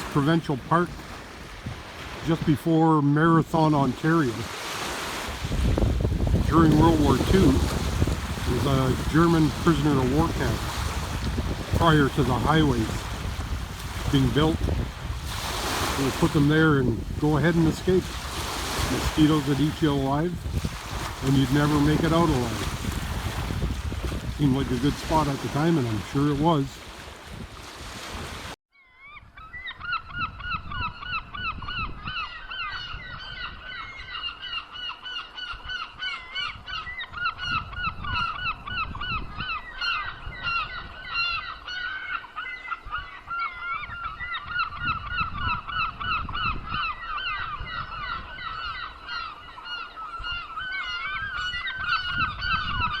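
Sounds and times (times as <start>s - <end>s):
geese honking: 6.5s - 13.3s, 14.1s - 20.3s, 21.0s - 22.7s.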